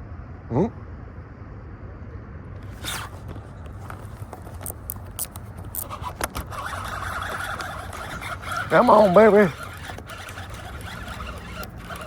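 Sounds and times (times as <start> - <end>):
low steady rumble: 0.0 - 12.0
fishing tackle clicks and scrapes: 2.6 - 12.0
fishing reel whirring: 4.5 - 12.0.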